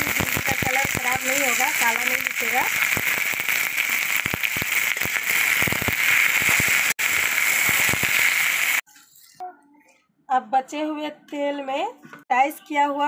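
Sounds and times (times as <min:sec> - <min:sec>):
crackling and pops: 0:00.0 - 0:08.8
okra deep-frying in oil: 0:00.0 - 0:09.3.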